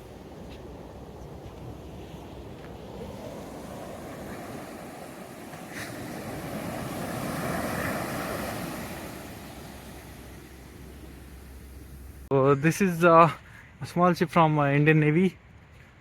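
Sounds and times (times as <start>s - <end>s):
sea surf washing on beach: 0.0s - 12.3s.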